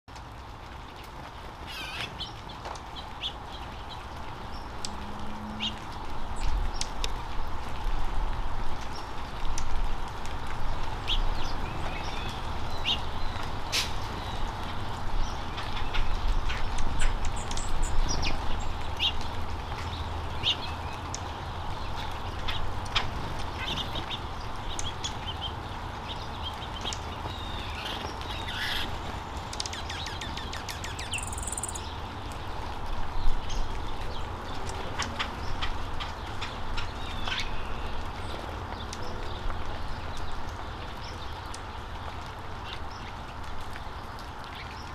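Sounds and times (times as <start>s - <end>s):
birds chirping at a feeder: 19.9s - 32.5s.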